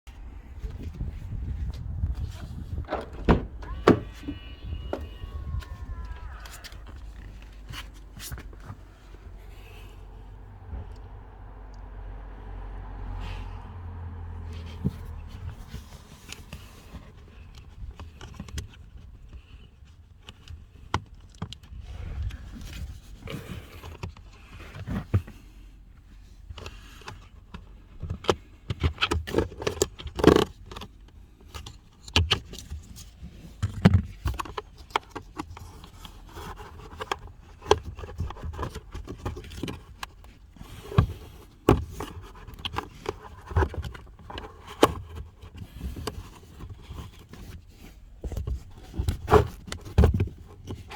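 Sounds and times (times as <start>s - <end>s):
plastic clicks and scraping: 26.5s - 50.9s.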